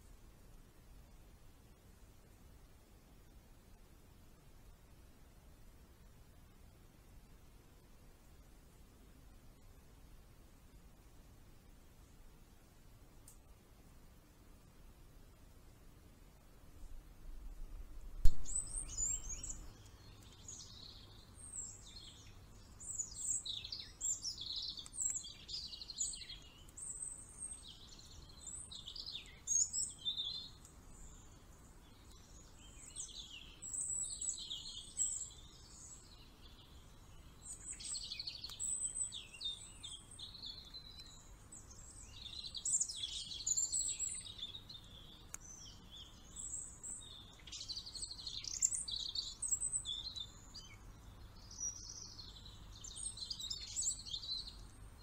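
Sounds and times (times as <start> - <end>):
small birds chirping: 15.2 - 55.0.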